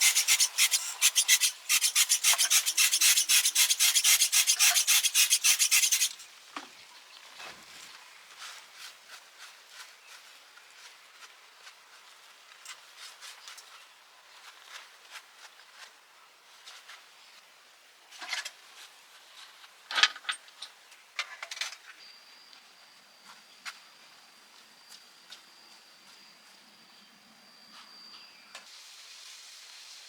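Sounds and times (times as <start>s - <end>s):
faint steady high tone: 22.0s - 28.7s.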